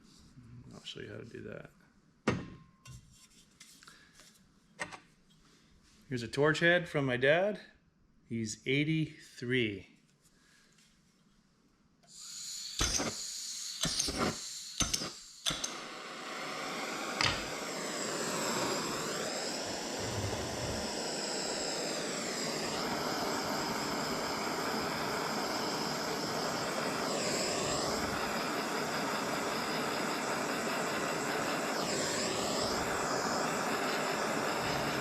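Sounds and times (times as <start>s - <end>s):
gas hissing: 12.0s - 35.0s
torch flame roaring: 12.1s - 35.0s
torch lighting pop: 12.7s - 21.0s
igniter clicks: 13.8s - 15.9s.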